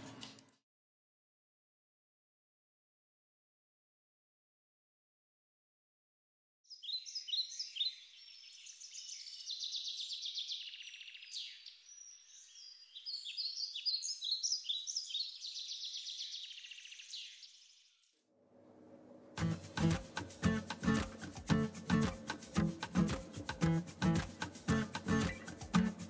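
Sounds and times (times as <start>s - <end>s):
birds chirping and trilling: 6.7s - 18.0s, 19.4s - 26.0s.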